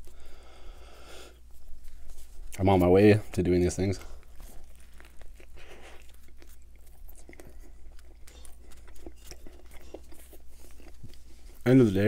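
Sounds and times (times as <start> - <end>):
chewing bread with wet mouth clicks: 4.0 - 11.7.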